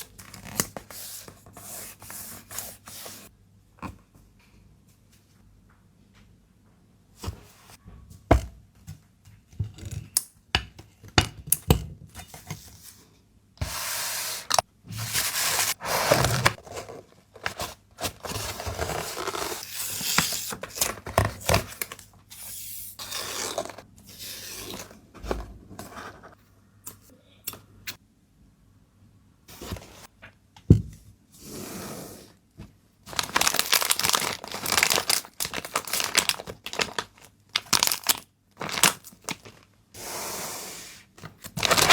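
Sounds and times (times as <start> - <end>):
packing material tearing and crinkling: 33.1 - 39.6, 41.5 - 41.9.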